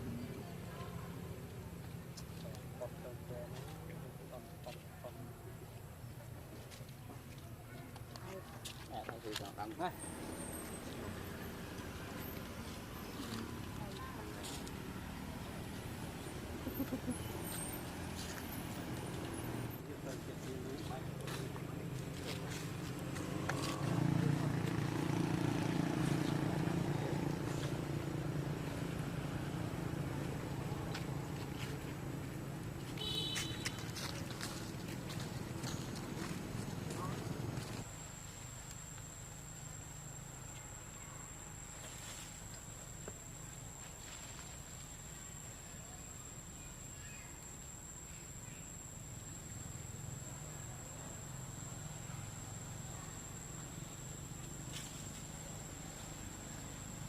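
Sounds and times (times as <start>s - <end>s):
vehicle engine running: 10.0s - 37.9s.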